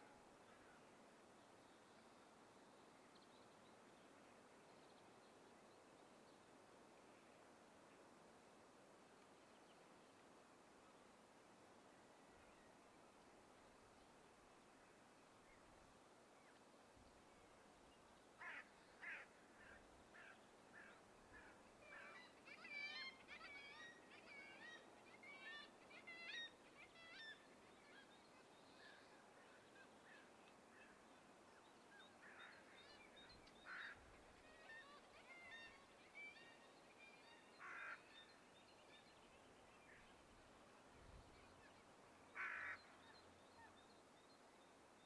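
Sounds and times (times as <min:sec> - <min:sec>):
faint air hiss: 0:00.0 - 0:22.6.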